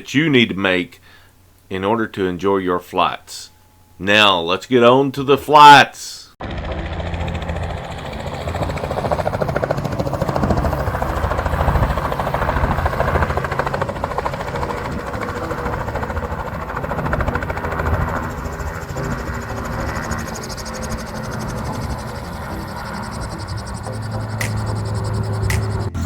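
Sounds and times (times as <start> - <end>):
helicopter rotor chopping: 6.4 - 26.0.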